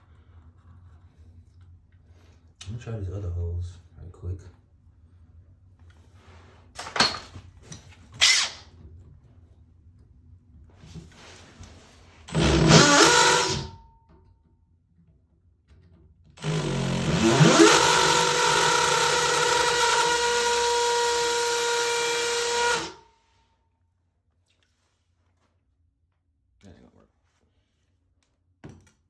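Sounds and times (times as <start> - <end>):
hammer drill drilling into metal: 8.2 - 8.6, 12.3 - 13.8, 16.4 - 23.0.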